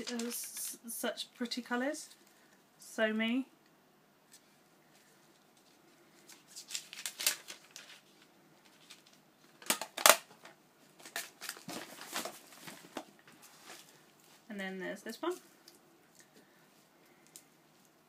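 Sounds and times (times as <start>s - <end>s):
gift wrapping crinkling and tearing: 0.0s - 0.8s, 5.3s - 10.3s, 11.0s - 14.3s.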